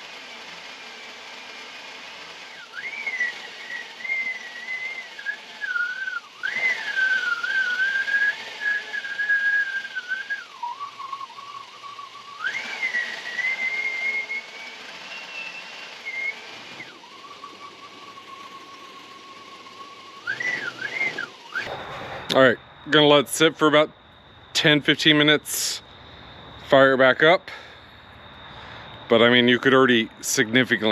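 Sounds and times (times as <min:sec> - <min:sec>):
high air whistle: 0:02.6 - 0:23.9.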